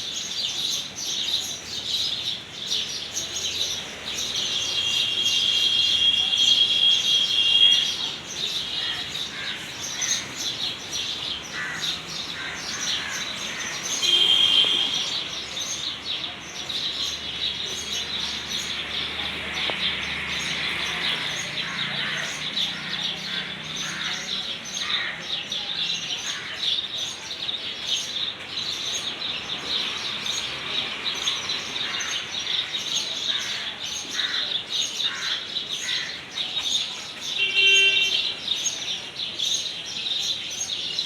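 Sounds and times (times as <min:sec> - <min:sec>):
birds chirping in chorus: 0:00.0 - 0:41.0.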